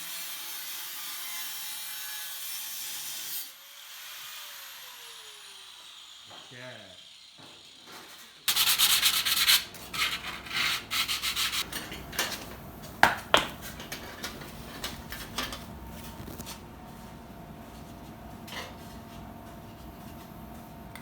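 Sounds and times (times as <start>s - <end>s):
sanding sheet metal: 8.5s - 11.7s.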